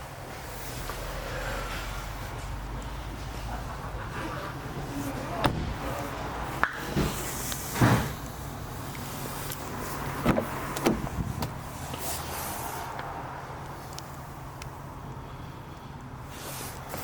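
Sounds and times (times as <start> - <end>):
knocks and clunks: 4.8 - 8.2, 10.2 - 11.6.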